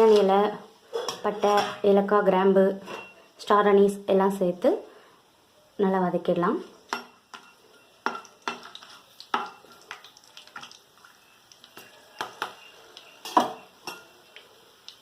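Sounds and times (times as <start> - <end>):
spoon clinking and scraping pan: 0.0 - 2.0, 2.8 - 3.2, 6.9 - 10.7, 11.7 - 14.5.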